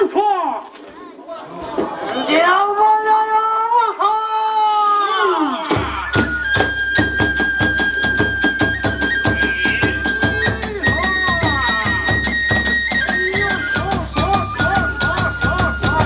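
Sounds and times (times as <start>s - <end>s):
drum strokes: 5.6s - 16.0s
bamboo flute high note: 6.1s - 16.0s.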